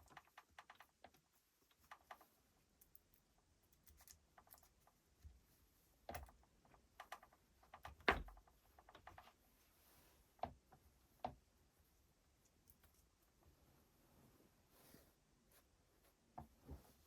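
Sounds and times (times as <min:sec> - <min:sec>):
small parts clicking and tapping: 0:00.0 - 0:05.4, 0:06.0 - 0:09.4, 0:12.4 - 0:13.3.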